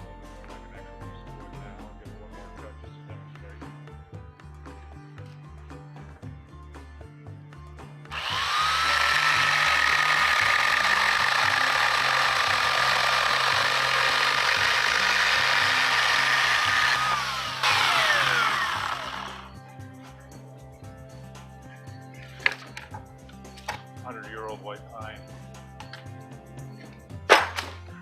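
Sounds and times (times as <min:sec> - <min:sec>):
electric chainsaw cutting wood: 0:08.1 - 0:19.5.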